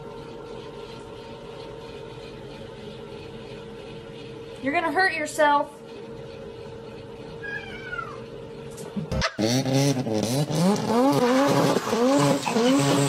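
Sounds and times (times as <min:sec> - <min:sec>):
engine revving up and down: 0:09.2 - 0:13.0.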